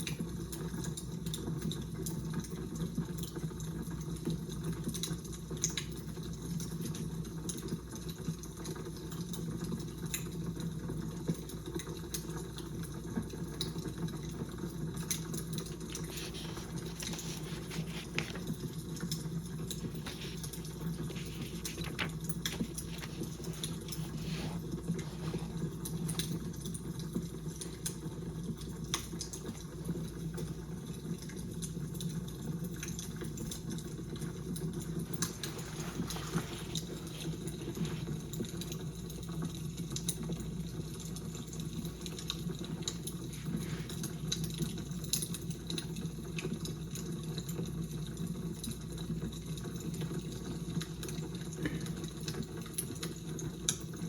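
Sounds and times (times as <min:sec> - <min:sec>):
fire crackling: 0:08.3 - 0:47.4.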